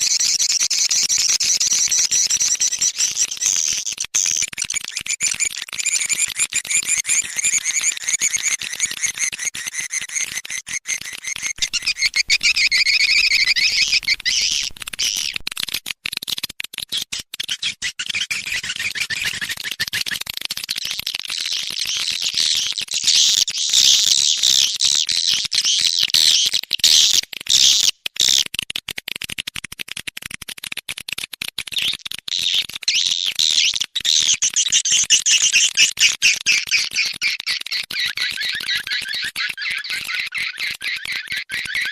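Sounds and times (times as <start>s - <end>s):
swiftlets twittering: 5.0s - 15.4s.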